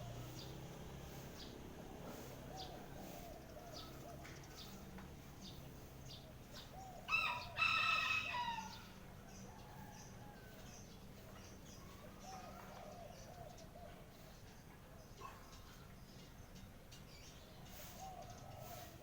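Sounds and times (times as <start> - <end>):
small birds chirping: 0.0 - 7.6, 8.2 - 19.0
rooster crowing: 7.1 - 8.8.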